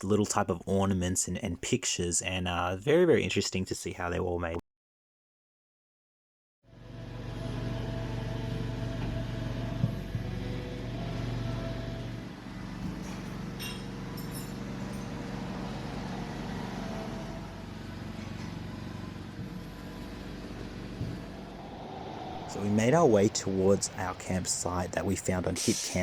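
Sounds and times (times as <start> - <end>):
car engine and road drone: 6.7 - 25.5.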